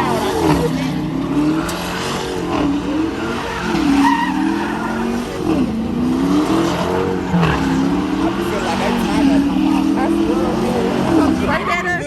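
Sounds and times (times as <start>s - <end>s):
car engine revving: 0.0s - 12.0s
tyres squealing: 0.0s - 12.0s.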